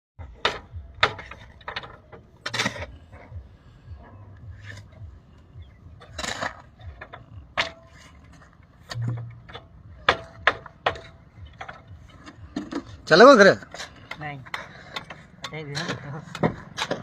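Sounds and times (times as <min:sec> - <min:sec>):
hand tools tapping and knocking: 0:00.2 - 0:17.0.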